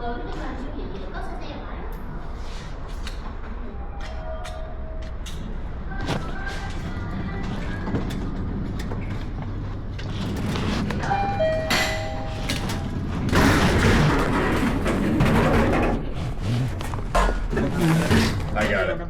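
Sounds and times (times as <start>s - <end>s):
street traffic: 0.0s - 19.0s
motorbike engine: 4.6s - 19.0s.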